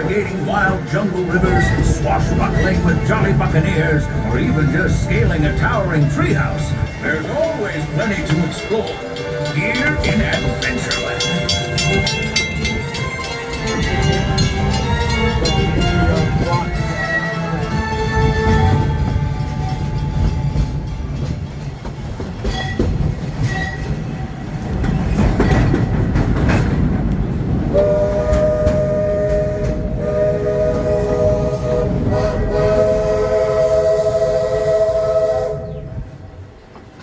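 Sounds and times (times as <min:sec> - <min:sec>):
steam train rumble: 0:00.0 - 0:37.0
steam whistle chord: 0:27.8 - 0:35.9.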